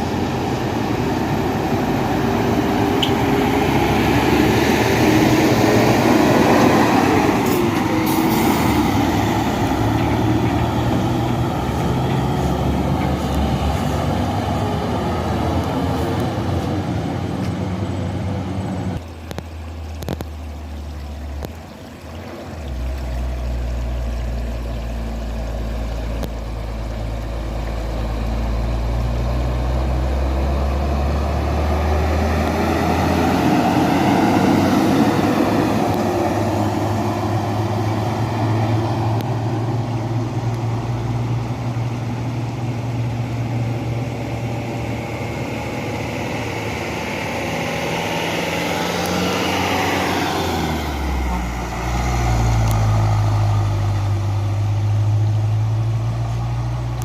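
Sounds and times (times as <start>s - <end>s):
dump truck driving past: 0.0s - 20.1s, 22.6s - 57.0s.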